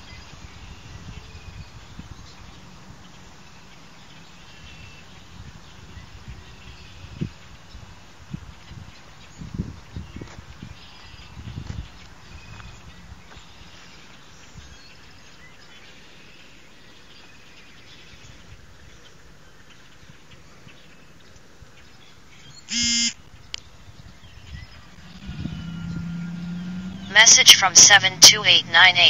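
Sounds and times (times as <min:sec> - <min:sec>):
small birds chirping: 0:00.0 - 0:27.1
phone text message alert: 0:22.7 - 0:23.1, 0:27.1 - 0:29.0.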